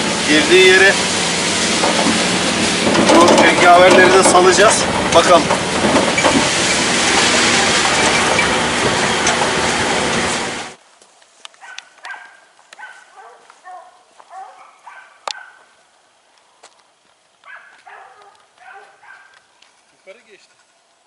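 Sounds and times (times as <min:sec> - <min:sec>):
vehicle running noise: 0:00.0 - 0:10.8
faint dogs barking: 0:11.6 - 0:15.8, 0:17.4 - 0:19.5.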